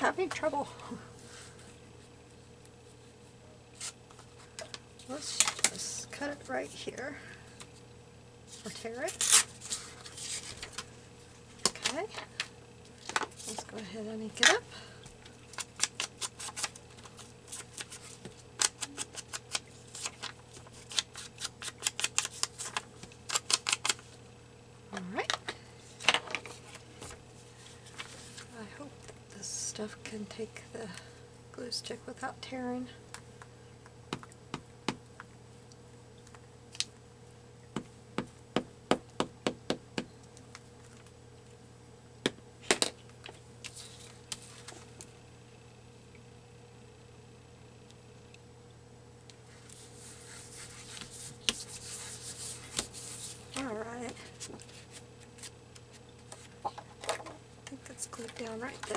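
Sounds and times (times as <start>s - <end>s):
ink pad tapping on paper: 37.8s - 40.1s
ink pad scraping paper: 49.7s - 55.5s.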